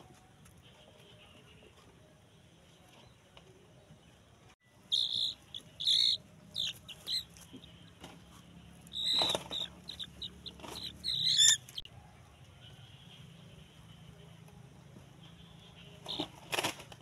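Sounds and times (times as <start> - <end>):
high-pitched bird chirps: 4.8 - 7.7, 8.9 - 11.9.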